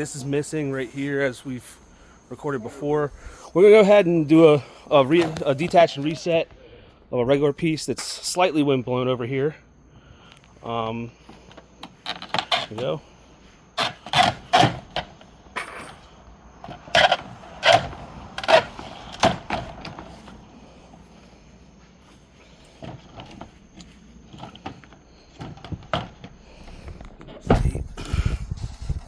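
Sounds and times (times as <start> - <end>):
plastic siding snapping: 13.8 - 20.4.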